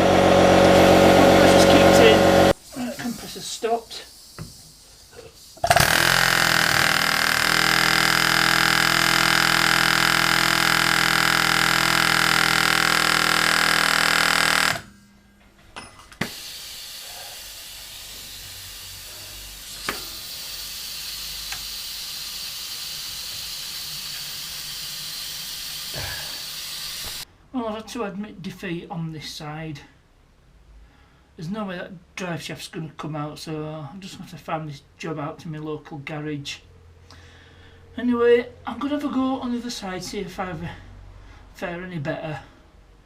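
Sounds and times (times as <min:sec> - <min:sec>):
air hissing: 0:00.0 - 0:14.9, 0:16.2 - 0:27.3
pneumatic air hammer rattling: 0:04.2 - 0:15.1, 0:16.0 - 0:27.2.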